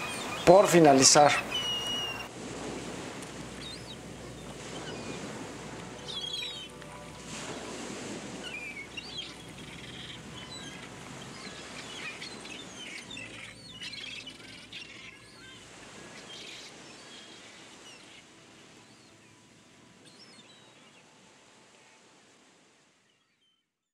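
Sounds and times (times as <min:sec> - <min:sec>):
small birds chirping: 0:00.0 - 0:02.3, 0:03.6 - 0:05.3, 0:06.0 - 0:07.1, 0:08.4 - 0:19.3.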